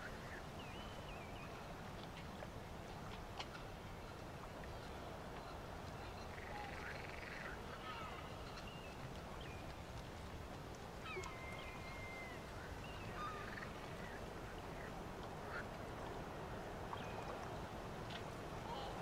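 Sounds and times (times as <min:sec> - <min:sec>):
faint background hiss: 0:00.0 - 0:19.0.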